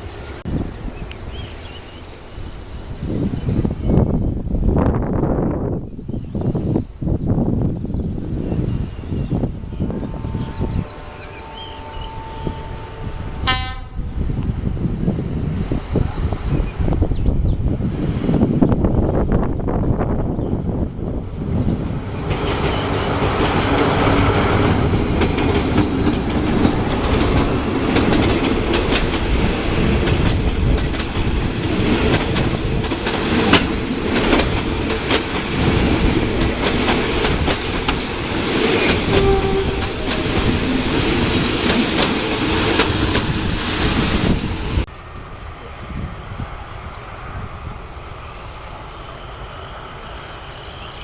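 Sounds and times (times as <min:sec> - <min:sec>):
train rolling rumble: 0:00.0 - 0:51.0
train wheels clattering on rails: 0:21.4 - 0:44.5.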